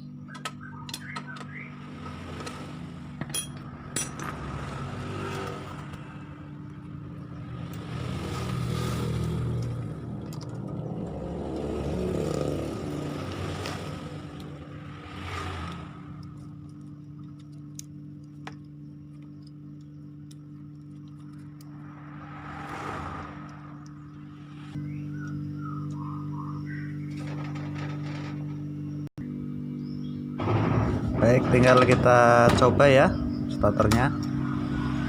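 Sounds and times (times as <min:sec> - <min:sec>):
motor vehicle engine: 0:00.0 - 0:35.0.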